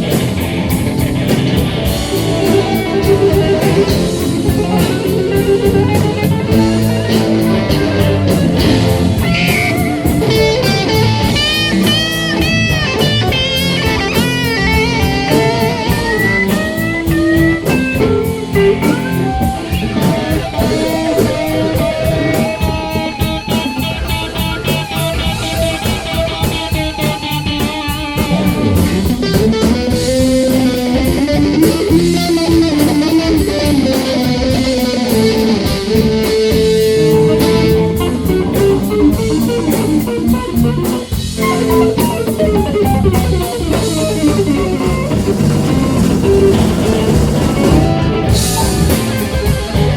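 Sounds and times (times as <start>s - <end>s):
drum kit steady beat: 0.0s - 49.9s
electric guitar bending notes: 0.0s - 49.9s.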